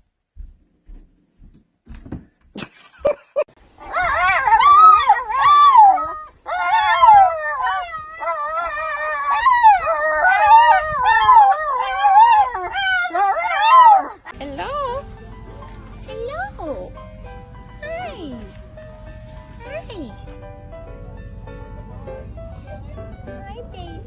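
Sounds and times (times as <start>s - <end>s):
dog howling: 3.8s - 14.3s.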